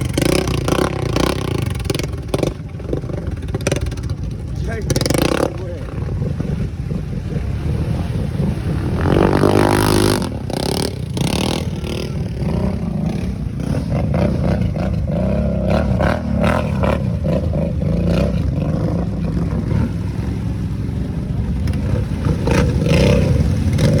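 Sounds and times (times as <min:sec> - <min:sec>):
small engine revving: 0:00.0 - 0:20.3, 0:21.7 - 0:24.0.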